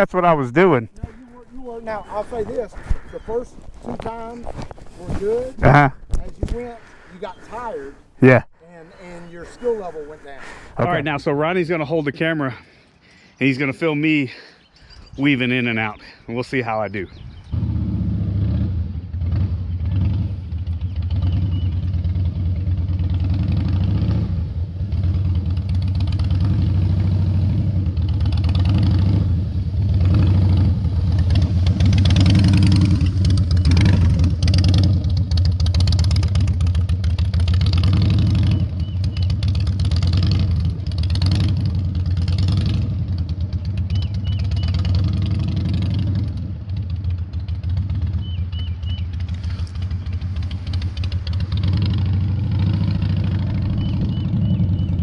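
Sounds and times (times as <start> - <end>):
motorcycle engine at low speed: 0.9 - 7.8, 17.1 - 55.0.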